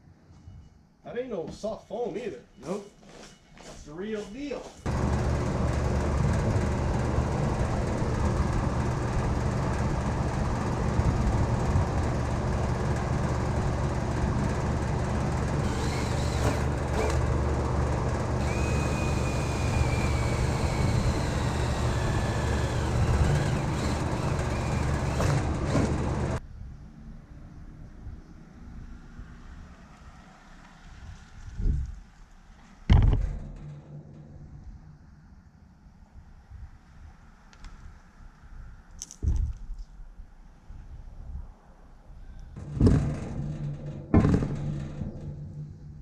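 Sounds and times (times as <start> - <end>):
motor running with low rumble: 4.9 - 26.4.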